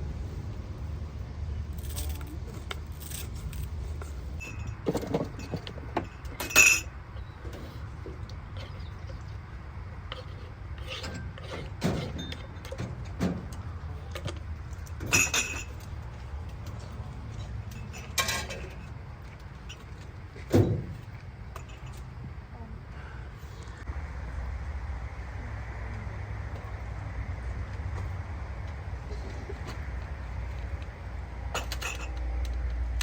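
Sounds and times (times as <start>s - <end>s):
steady low hum: 0.0s - 33.0s
objects clinking and knocking: 1.7s - 7.7s, 10.2s - 22.2s, 31.5s - 32.5s.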